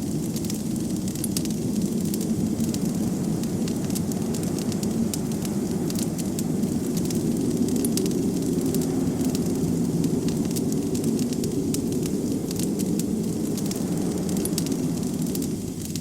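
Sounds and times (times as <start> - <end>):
wood fire crackling: 0.0 - 16.0
low rushing noise: 2.3 - 16.0.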